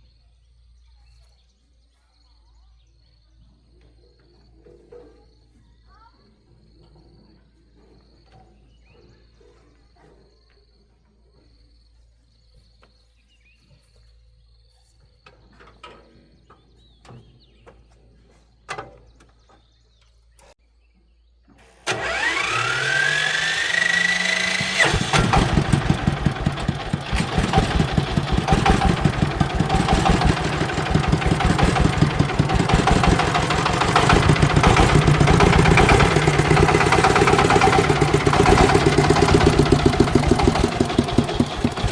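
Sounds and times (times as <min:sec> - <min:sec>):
engine running steadily: 0:21.9 - 0:41.9
starter motor whining: 0:21.9 - 0:41.9.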